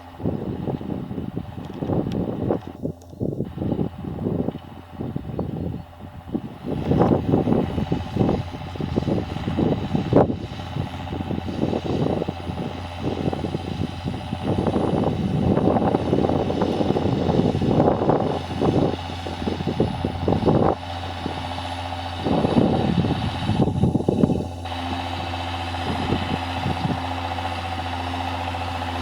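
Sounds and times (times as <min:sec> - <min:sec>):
tractor engine running: 0:00.0 - 0:29.0
uneven rushing noise: 0:06.4 - 0:29.0.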